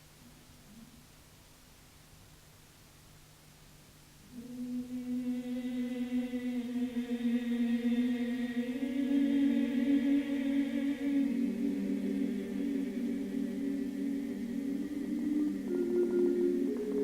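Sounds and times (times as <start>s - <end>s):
voices chanting held note: 4.3s - 17.0s.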